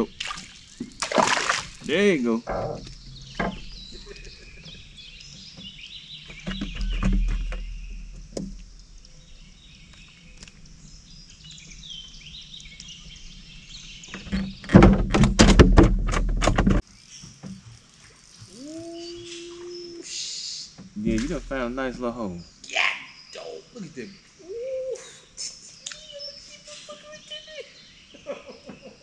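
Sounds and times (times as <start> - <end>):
songbirds chirping and singing: 1.8 - 15.9, 18.4 - 29.0
knocks: 14.2 - 16.8
low hum: 21.0 - 22.5.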